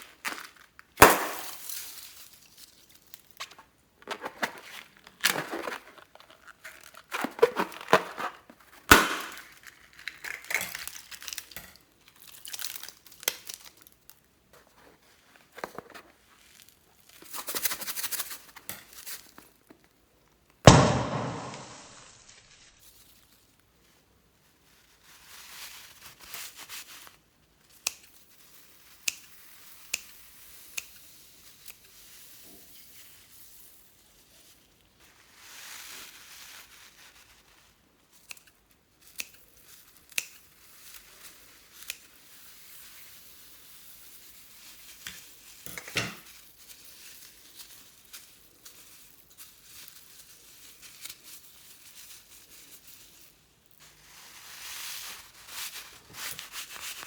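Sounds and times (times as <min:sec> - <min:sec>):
slime crackling and popping: 0:00.2 - 0:02.0, 0:08.8 - 0:14.2.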